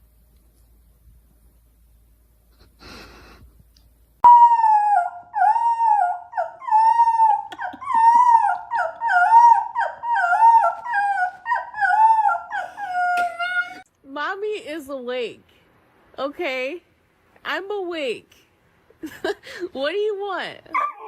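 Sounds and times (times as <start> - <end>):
dog howling and whining: 4.2 - 13.9.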